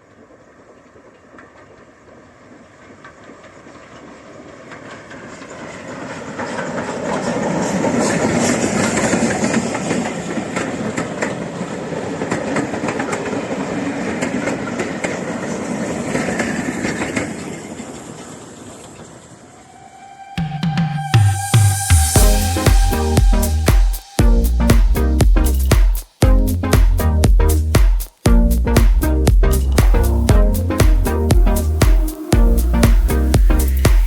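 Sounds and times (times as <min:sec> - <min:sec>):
wheels clicking over rail joints: 0:00.0 - 0:19.5
steam train passing: 0:00.0 - 0:34.0.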